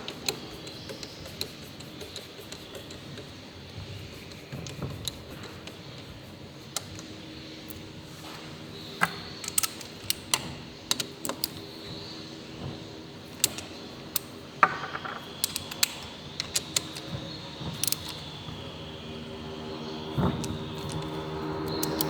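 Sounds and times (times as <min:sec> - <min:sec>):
metallic clicks of hand tools: 0:08.8 - 0:12.1, 0:13.2 - 0:18.6, 0:20.2 - 0:22.0.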